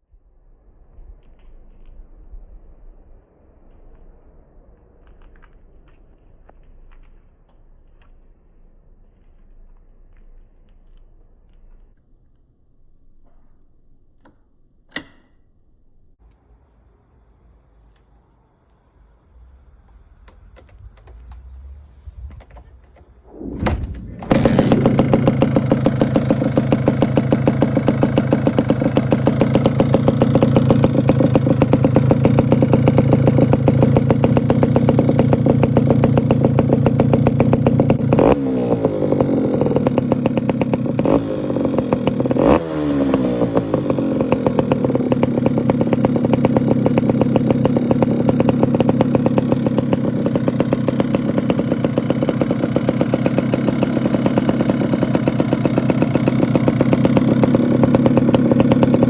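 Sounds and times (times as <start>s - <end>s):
motorcycle engine revving: 19.3s - 59.0s
motorcycle engine popping idle: 22.4s - 59.0s.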